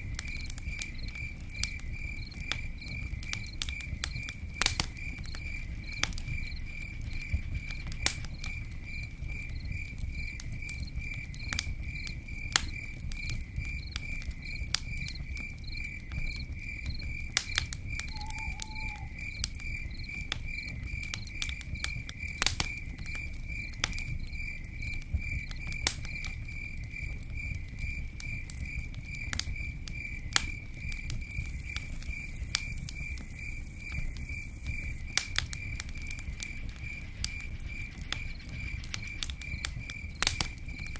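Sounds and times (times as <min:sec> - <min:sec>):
campfire crackling and popping: 0:00.0 - 0:40.9
insect chirping: 0:00.0 - 0:40.9.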